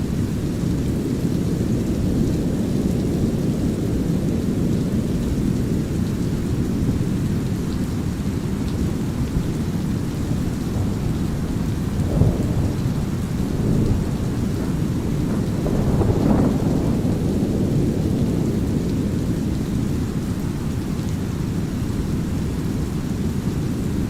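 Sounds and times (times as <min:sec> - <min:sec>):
light drizzle: 0:00.0 - 0:24.0
rolling thunder: 0:09.3 - 0:20.6.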